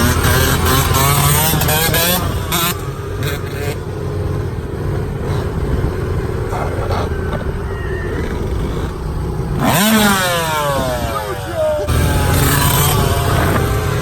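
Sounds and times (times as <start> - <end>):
dirt bike engine: 0.0 - 14.0
wind rumble on microphone: 4.7 - 14.0
engine revving sharply: 6.4 - 14.0.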